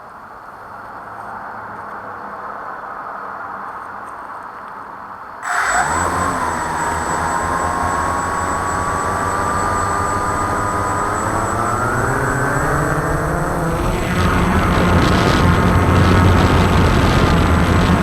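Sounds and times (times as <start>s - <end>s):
quadcopter propellers whining: 5.4s - 18.0s.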